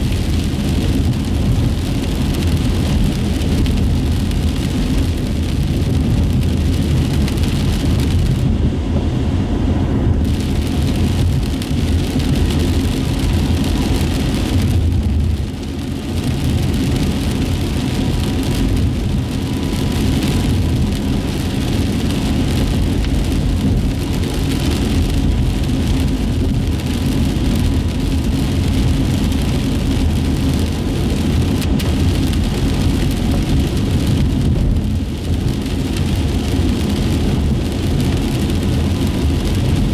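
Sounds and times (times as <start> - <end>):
engine and road rumble: 0.0 - 39.9
tyres hissing on wet asphalt: 10.2 - 39.9.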